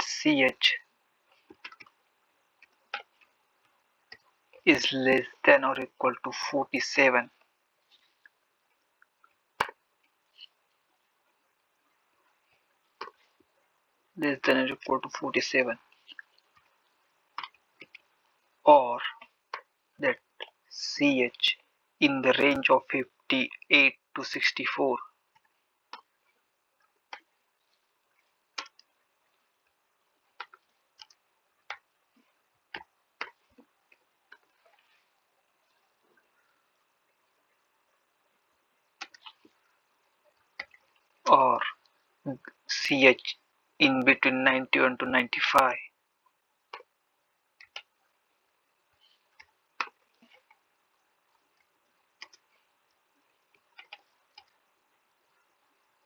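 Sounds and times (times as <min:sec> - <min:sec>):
computer keyboard keys tapping: 0:30.3 - 0:31.9, 0:53.5 - 0:54.6
computer keyboard typing: 0:53.6 - 0:54.6.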